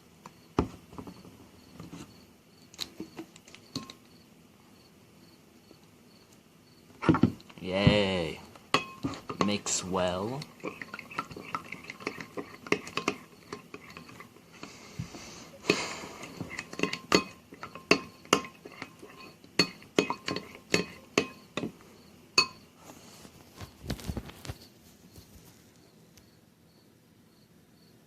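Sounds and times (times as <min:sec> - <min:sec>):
spoon clinking against dish: 0:03.7 - 0:04.0, 0:08.7 - 0:09.6, 0:10.4 - 0:14.3, 0:16.4 - 0:21.7, 0:22.4 - 0:22.6
spoon scraping dish: 0:08.8 - 0:21.8.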